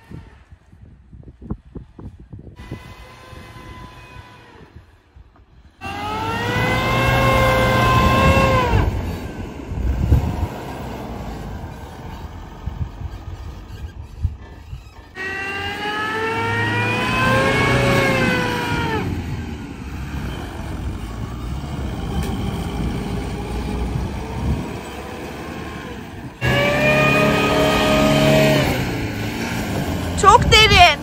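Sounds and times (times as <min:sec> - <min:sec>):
truck engine revving hard: 0:05.8 - 0:13.9, 0:15.1 - 0:31.0.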